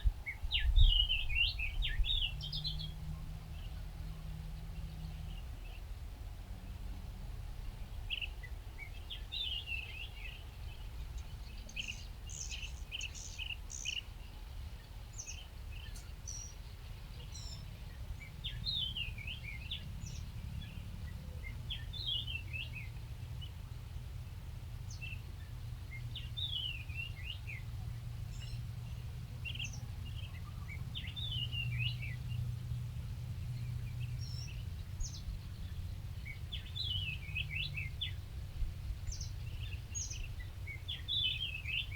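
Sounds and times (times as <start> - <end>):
birds chirping: 8.0 - 23.6, 24.9 - 41.9.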